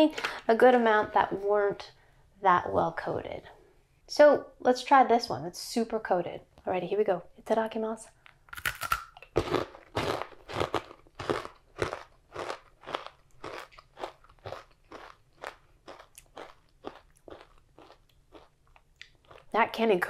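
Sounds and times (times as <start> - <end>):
person crunching a snack: 8.5 - 19.5.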